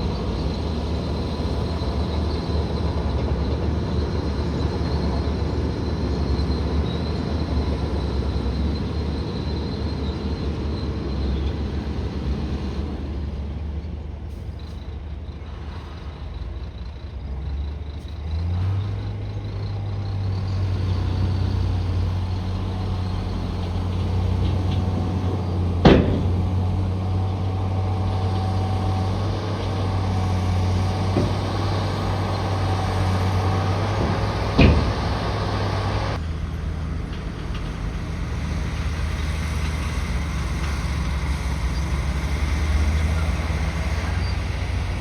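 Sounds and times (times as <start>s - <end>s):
bulldozer diesel engine running: 0.0s - 45.0s
loud sharp bangs: 25.2s - 27.0s.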